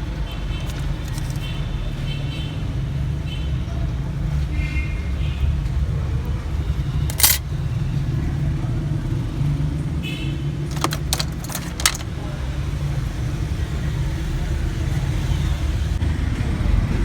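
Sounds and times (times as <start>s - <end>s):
small clicks: 7.1s - 7.4s.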